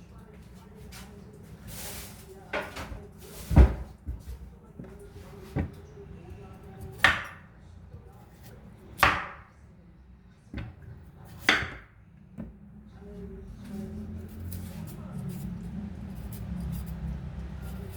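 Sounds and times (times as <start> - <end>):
knife chopping on wooden board: 6.8 - 7.4, 8.3 - 9.5, 10.6 - 12.5.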